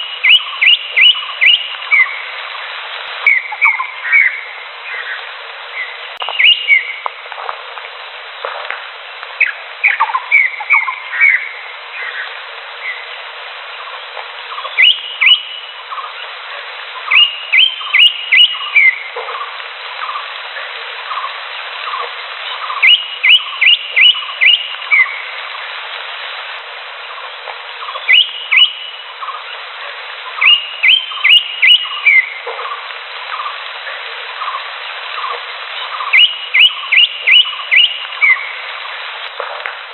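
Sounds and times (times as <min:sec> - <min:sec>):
bird whistling sharp rising notes: 0:00.0 - 0:02.2, 0:05.8 - 0:07.0, 0:14.6 - 0:15.7, 0:17.1 - 0:19.0, 0:22.7 - 0:25.2, 0:27.9 - 0:29.0, 0:30.4 - 0:32.3, 0:36.0 - 0:38.5.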